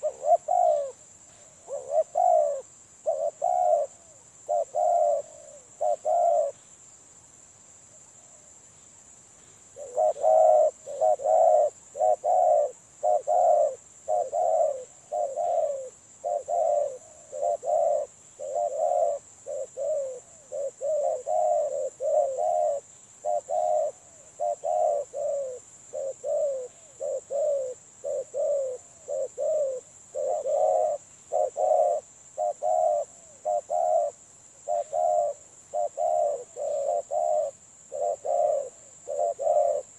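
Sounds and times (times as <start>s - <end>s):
dove cooing: 0.0s - 6.7s, 9.7s - 39.9s.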